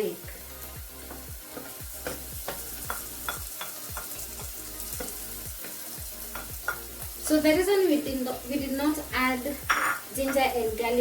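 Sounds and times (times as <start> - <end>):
onions sizzling in a pan: 0.0 - 11.0
spoon scraping a pan: 9.6 - 10.5.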